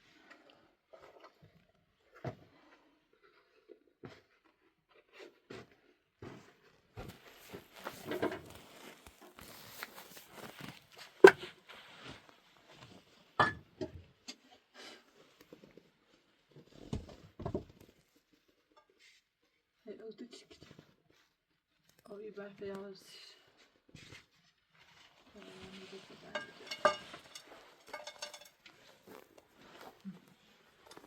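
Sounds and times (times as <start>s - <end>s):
rustling: 7.1s - 13.1s, 24.0s - 31.0s.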